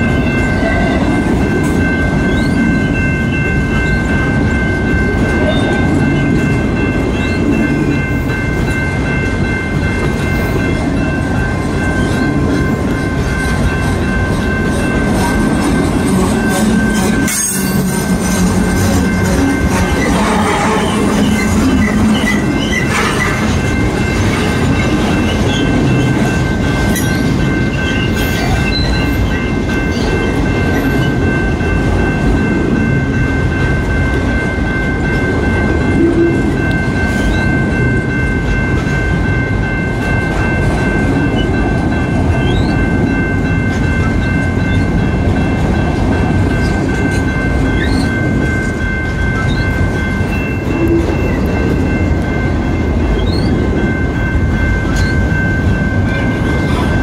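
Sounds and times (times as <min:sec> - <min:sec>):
train wheels rumbling on rails: 0:00.0 - 0:57.0
wheels clickety-clack: 0:00.0 - 0:57.0.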